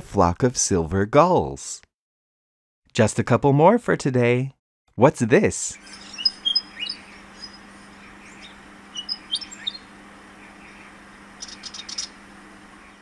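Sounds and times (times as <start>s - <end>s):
bird whistled chirps: 5.8s - 12.2s
bird rapid chatter: 5.8s - 13.0s
faint low hum: 5.8s - 13.0s.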